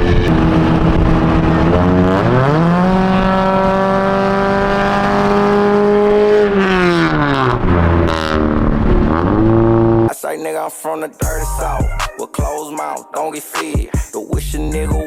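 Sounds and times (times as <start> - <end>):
car with raspy exhaust accelerating: 0.0 - 10.1.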